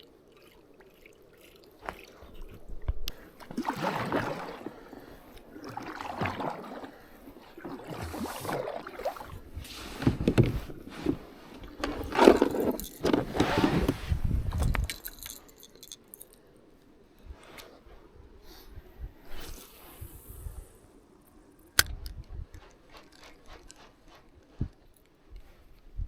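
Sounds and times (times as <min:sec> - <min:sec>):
kayak paddle splashing water: 0:00.0 - 0:13.9.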